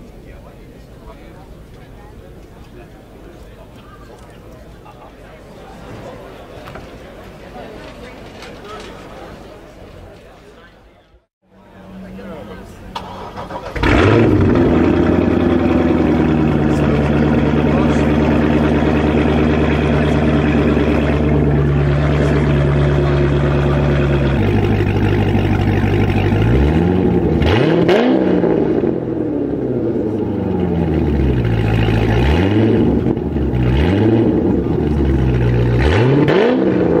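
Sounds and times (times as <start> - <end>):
sports car engine revving: 11.8 - 37.0.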